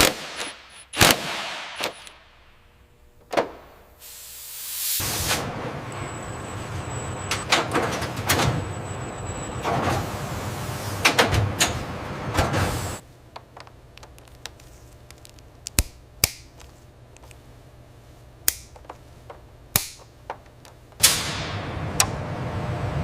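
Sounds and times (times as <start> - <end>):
loud noisy factory hum: 4.1 - 13.0, 21.0 - 23.0.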